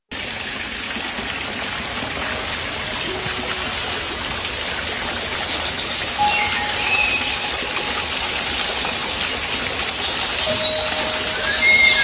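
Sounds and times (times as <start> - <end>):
fountain water splashing: 0.1 - 12.0.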